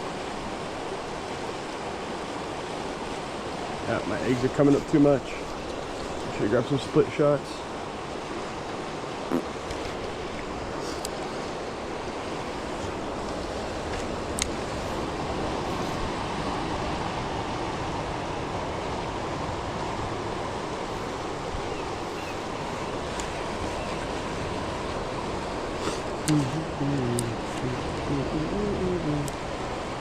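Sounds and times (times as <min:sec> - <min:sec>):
creek water rushing over rocks: 0:00.0 - 0:30.0.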